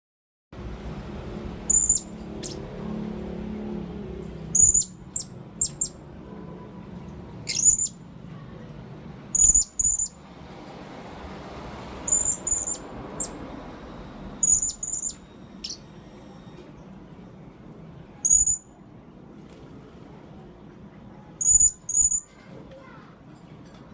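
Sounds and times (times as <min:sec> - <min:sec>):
parrot calling: 0:01.7 - 0:02.7, 0:04.5 - 0:06.0, 0:07.4 - 0:08.0, 0:12.1 - 0:13.4, 0:14.4 - 0:16.0.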